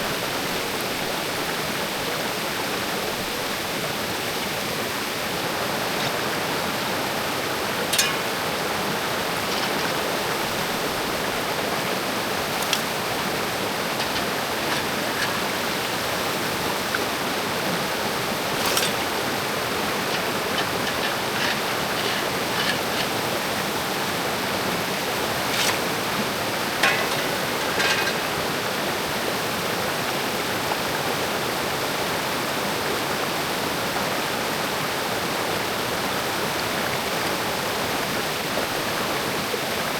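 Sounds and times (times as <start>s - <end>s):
water rushing over rocks: 1.7s - 29.4s
sharp clicks and knocks: 7.9s - 10.6s, 12.4s - 16.3s, 18.5s - 23.6s, 25.4s - 26.0s, 26.7s - 28.6s.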